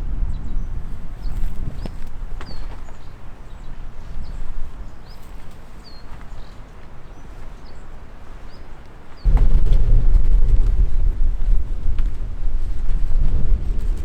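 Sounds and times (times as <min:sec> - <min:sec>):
wind rumble on microphone: 0:00.0 - 0:14.0
small birds chirping: 0:00.1 - 0:09.6.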